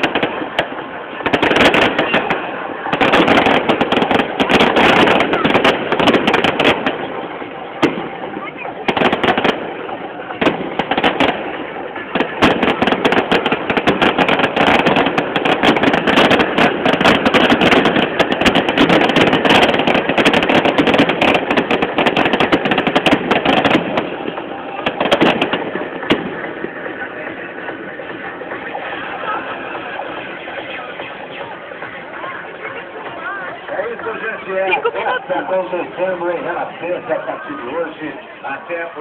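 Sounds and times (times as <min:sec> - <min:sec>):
fireworks cracks and bangs: 0:00.0 - 0:39.0.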